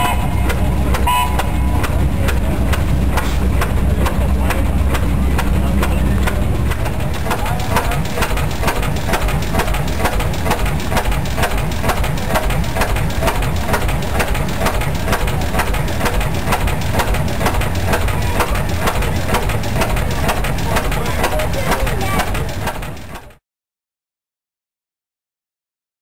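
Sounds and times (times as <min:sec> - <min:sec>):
oil field engine running: 0:00.0 - 0:23.4.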